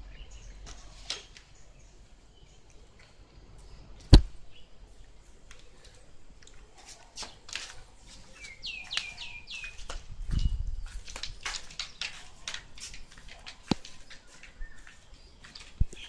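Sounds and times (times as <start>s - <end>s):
sharp knock: 4.1s - 4.3s.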